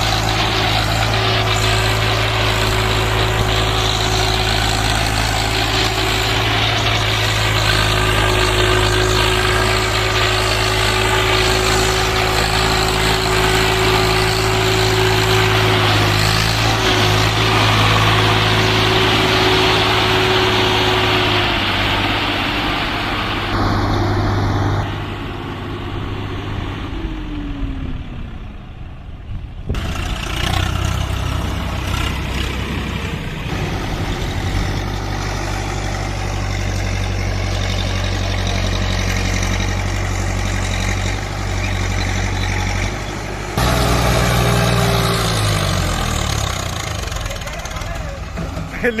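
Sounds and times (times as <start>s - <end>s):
tractor diesel engine running: 0.0s - 49.0s
short falling tone: 23.5s - 26.6s.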